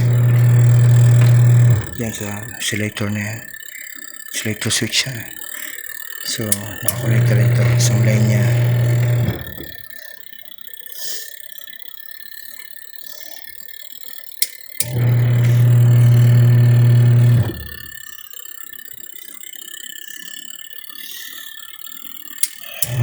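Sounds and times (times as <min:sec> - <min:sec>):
switch clicks: 0:00.0 - 0:02.6, 0:06.4 - 0:09.8, 0:14.4 - 0:17.9, 0:22.4 - 0:23.0
washing machine motor hum: 0:00.0 - 0:10.2, 0:14.8 - 0:18.1, 0:22.1 - 0:23.0.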